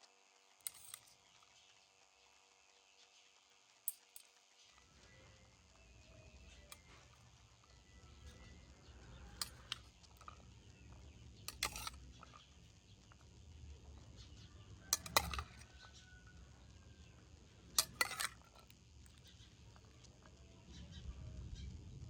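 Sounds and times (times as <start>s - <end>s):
utensils clinking against dishes: 0.6s - 1.3s, 9.2s - 10.4s, 11.5s - 12.5s, 14.9s - 15.8s, 17.8s - 19.2s.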